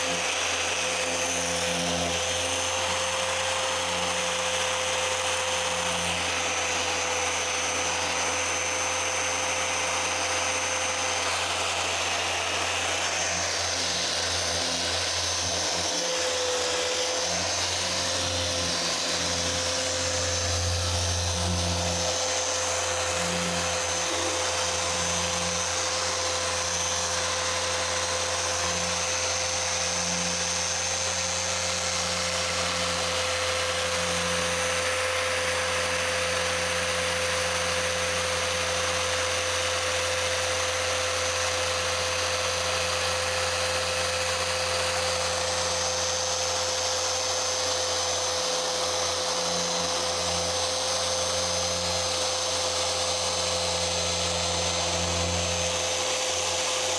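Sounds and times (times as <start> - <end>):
polishing pad hissing on paint: 0.0 - 31.1
machine polisher motor whine: 0.0 - 56.9.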